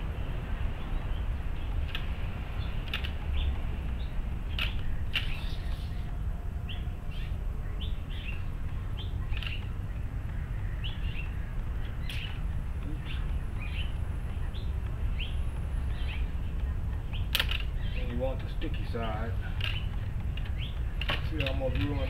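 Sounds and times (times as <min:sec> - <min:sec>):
low background rumble: 0:00.0 - 0:22.0
small bird chirping: 0:00.7 - 0:22.0
sharp click: 0:17.3 - 0:17.7.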